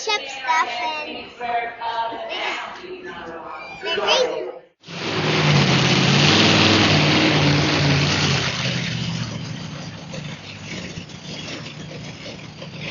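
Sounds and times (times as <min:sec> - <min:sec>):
large vehicle engine running: 0:04.8 - 0:12.9.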